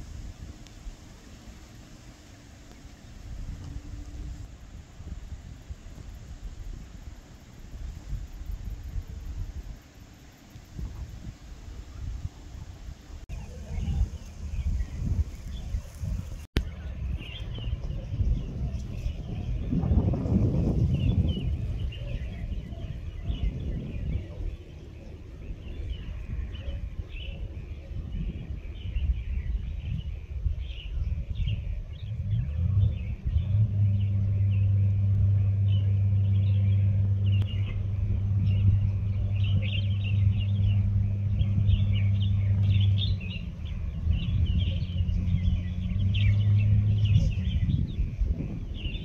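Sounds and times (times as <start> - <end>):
low mechanical hum: 0.0 - 49.0
steady low rumble: 0.0 - 49.0
small birds chirping: 0.6 - 49.0.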